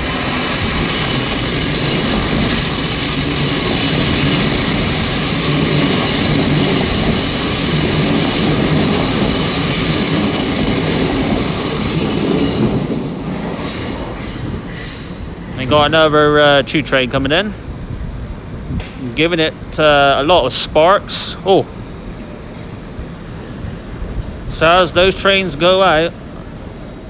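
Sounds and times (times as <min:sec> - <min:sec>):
wheels squealing on track: 0:00.0 - 0:15.6
train wheels rumbling: 0:00.0 - 0:27.0.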